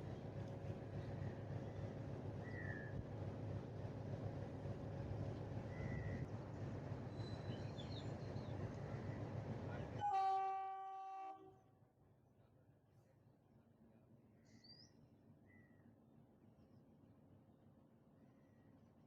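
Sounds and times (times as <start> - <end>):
train rumbling along track: 0.0 - 11.0
locomotive horn blast: 10.0 - 11.5.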